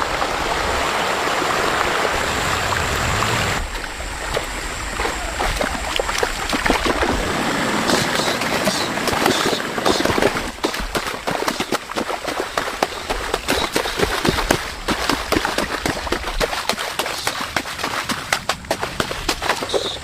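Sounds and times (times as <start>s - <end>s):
floodwater rushing: 0.0s - 20.0s
splashes in shallow water: 0.0s - 20.0s
sharp knocks in water: 4.3s - 20.0s.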